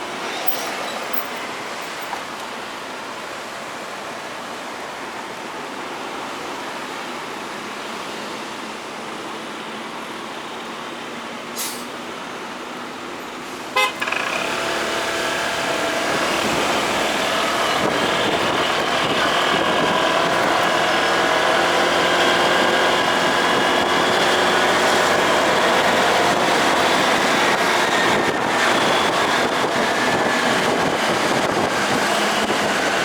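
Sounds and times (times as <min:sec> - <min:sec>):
horn beep: 0:13.7 - 0:14.2
motorcycle engine: 0:13.8 - 0:26.6.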